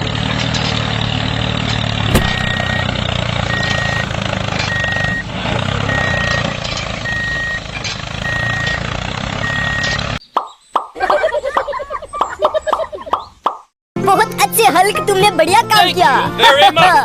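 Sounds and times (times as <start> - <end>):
vehicle engine running: 0.0 - 10.2
reversing alarm beeping: 2.3 - 4.1, 4.7 - 10.0.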